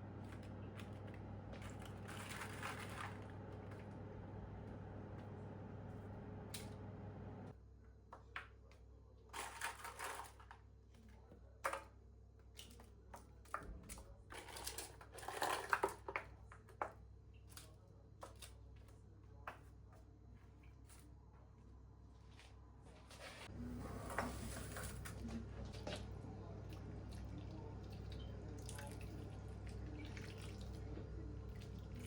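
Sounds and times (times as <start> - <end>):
steady low hum: 0.0 - 7.6, 21.1 - 32.0.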